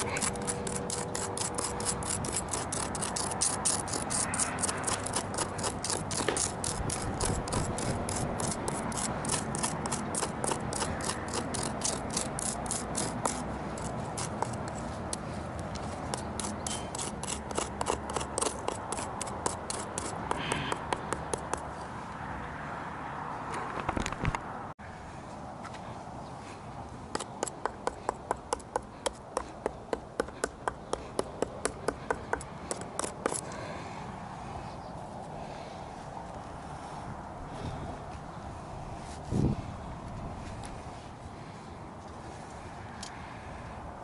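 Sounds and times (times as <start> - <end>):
hand tool scraping charred wood: 0.0 - 21.9, 27.1 - 33.8.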